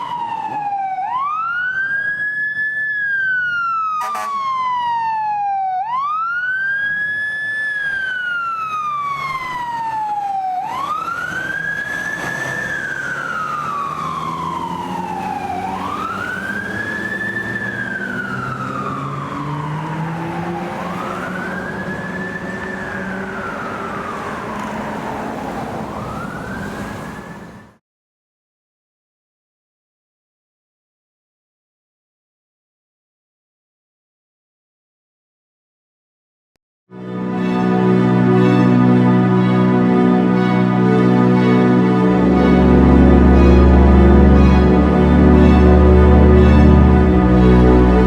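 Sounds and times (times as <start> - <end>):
fire truck siren wailing: 0.0 - 27.8, 36.9 - 48.0
truck engine accelerating: 6.9 - 27.8, 37.0 - 48.0.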